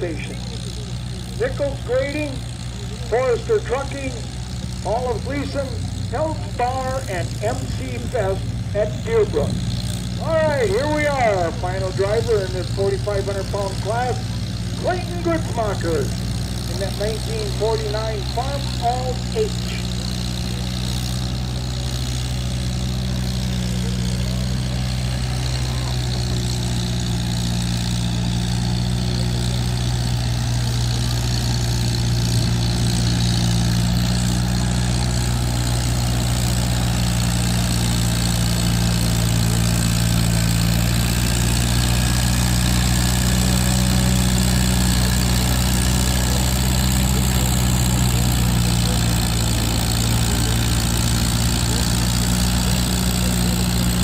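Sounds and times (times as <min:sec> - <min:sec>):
tractor engine droning: 0:00.0 - 0:54.0.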